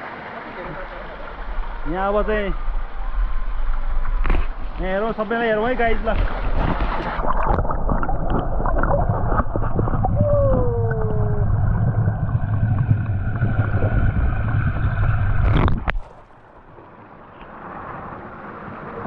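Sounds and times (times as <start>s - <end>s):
water running and splashing: 0.4s - 16.8s
heavy low rumble: 7.2s - 16.6s.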